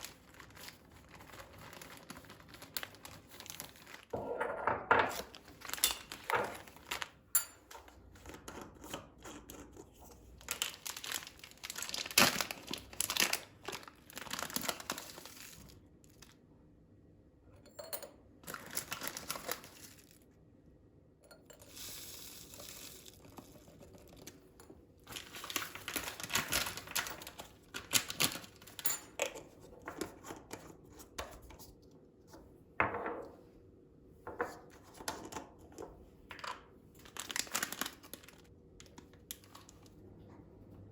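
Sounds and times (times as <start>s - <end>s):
packaging crinkling and tearing: 0.0s - 4.1s, 5.1s - 7.2s, 10.3s - 16.4s, 18.4s - 20.2s, 25.0s - 28.8s, 37.0s - 39.9s.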